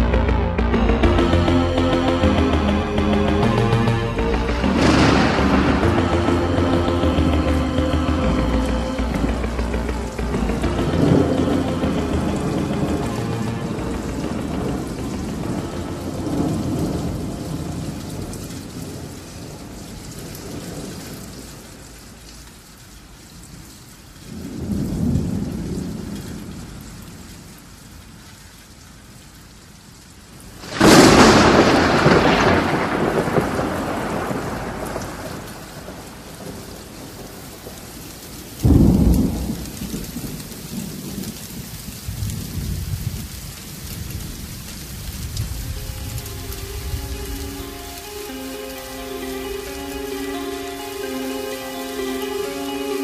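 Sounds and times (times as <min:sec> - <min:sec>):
steady rain: 0:00.0 - 0:53.0
thunder rolling: 0:02.2 - 0:21.8, 0:30.6 - 0:53.0
sharp thunderclap: 0:04.5 - 0:07.5, 0:09.2 - 0:21.0, 0:30.6 - 0:37.9, 0:38.6 - 0:43.3.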